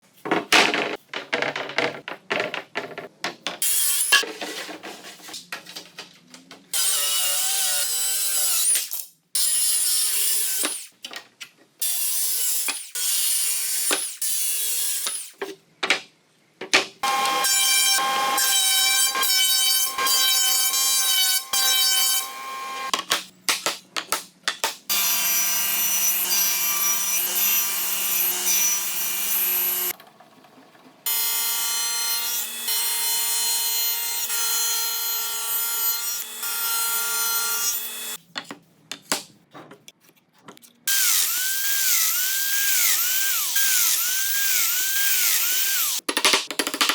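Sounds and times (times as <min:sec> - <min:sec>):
power tools whining: 0:17.0 - 0:22.9.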